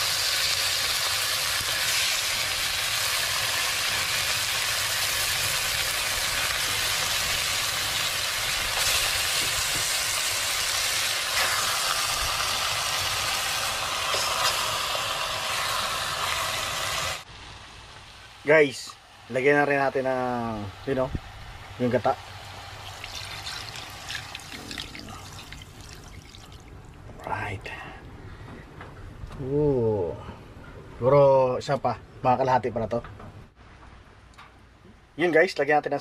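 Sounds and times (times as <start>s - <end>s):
fish pieces sizzling in butter: 0.0s - 17.3s.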